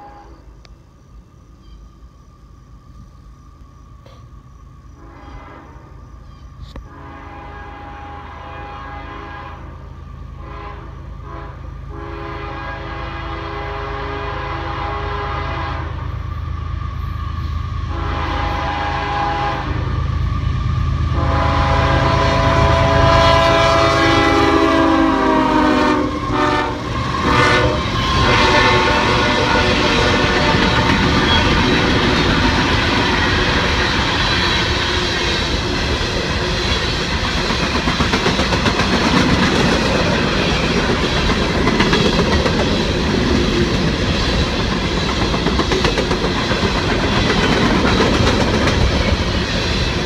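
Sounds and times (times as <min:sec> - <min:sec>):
train air horn blasts: 0:00.0 - 0:00.6, 0:05.0 - 0:06.0, 0:06.9 - 0:16.4, 0:17.0 - 0:33.6
rail cars clattering: 0:00.0 - 0:50.0.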